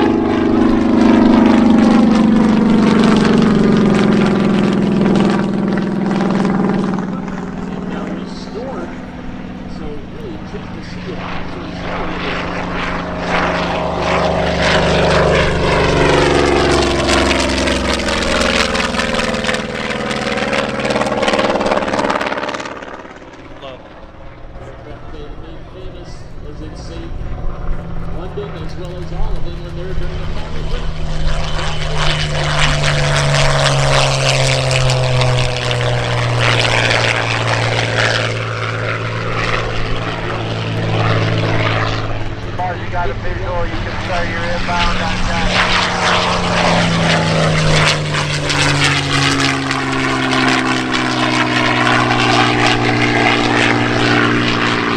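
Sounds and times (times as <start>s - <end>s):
propeller aircraft flying past: 0.0s - 54.9s.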